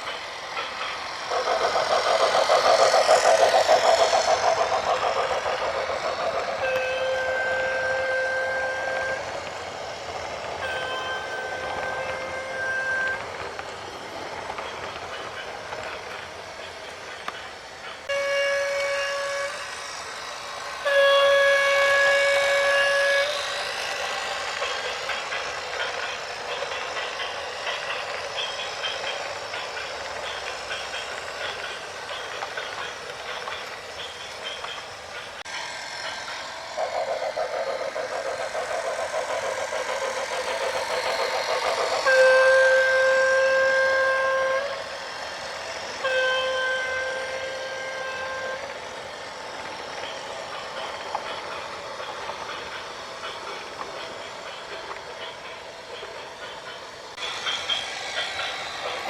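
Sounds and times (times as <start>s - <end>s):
vehicle horn blasts: 6.6s - 9.2s, 18.1s - 19.6s, 46.1s - 48.6s.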